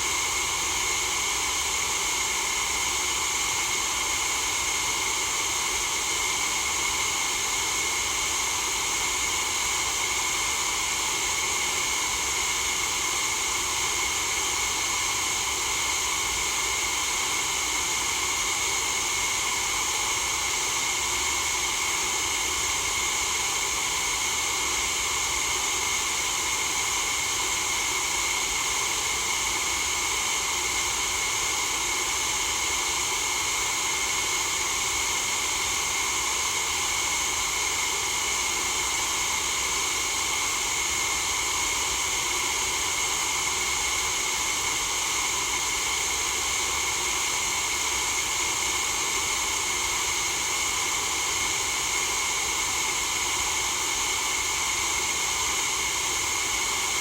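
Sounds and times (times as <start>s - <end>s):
steady white noise hiss: 0.0s - 1.3s.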